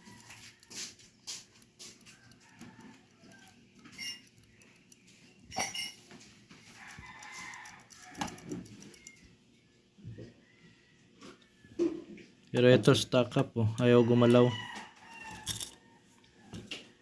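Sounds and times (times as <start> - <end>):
small metal parts clicking: 0.0 - 9.3, 15.0 - 15.8
faint chicken clucking: 6.7 - 12.4.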